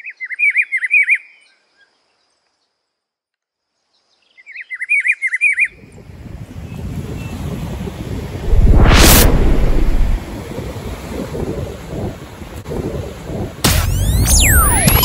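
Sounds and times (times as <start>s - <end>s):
wind: 0.0s - 15.0s
surf: 8.2s - 15.0s.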